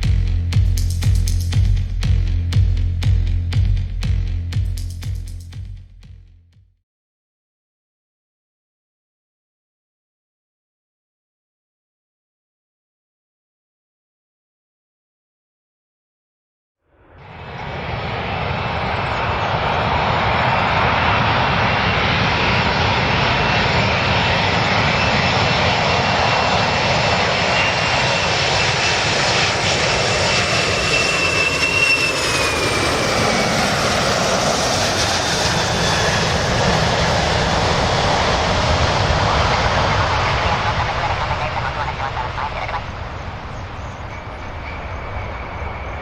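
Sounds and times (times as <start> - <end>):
airplane engines running: 0.0 - 6.2, 17.0 - 46.0
high whine: 0.0 - 6.4, 17.0 - 46.0.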